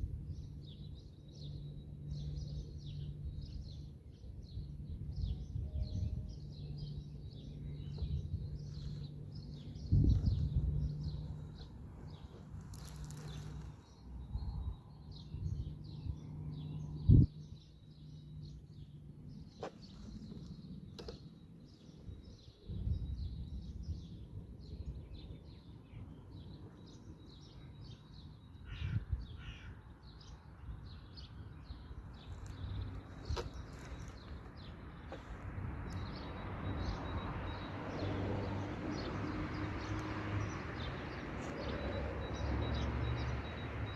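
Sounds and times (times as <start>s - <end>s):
low outdoor rumble: 0.0s - 21.8s
birds calling and chirping: 0.3s - 43.9s.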